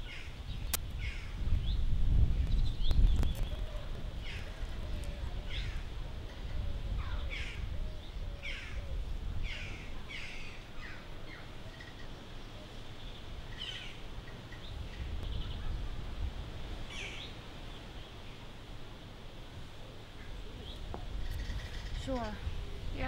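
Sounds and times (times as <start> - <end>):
birds calling: 2.4 - 15.9, 16.8 - 18.5, 20.2 - 23.0.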